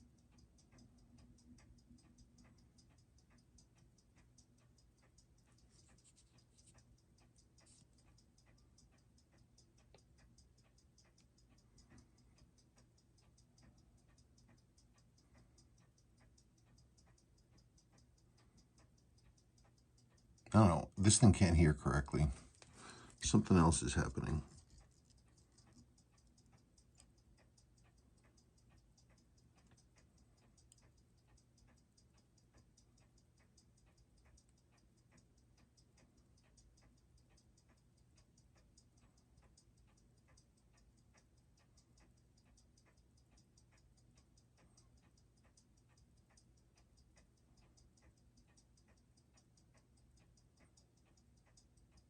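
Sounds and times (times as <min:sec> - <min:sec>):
watch ticking: 0:00.0 - 0:52.0.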